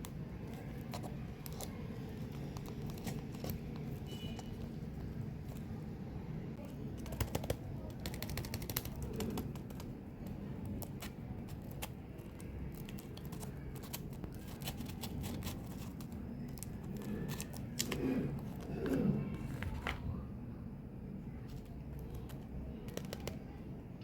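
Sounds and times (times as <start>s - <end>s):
gum packaging crackling: 7.0s - 19.9s.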